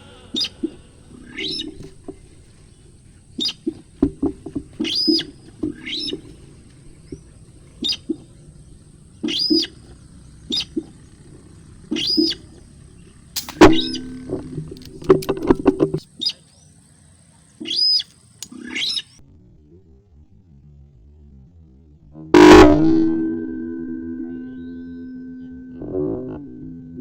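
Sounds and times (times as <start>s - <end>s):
bird calling: 0.0s - 19.2s
sharp loud click: 13.4s - 16.0s.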